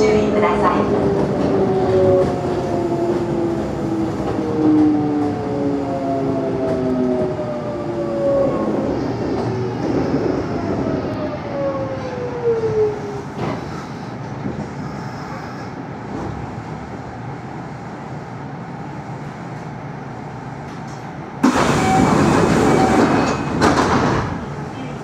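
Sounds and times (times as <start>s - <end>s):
stopped train humming: 0.0s - 25.0s
loud hiss of train doors: 13.4s - 16.6s, 21.4s - 24.3s.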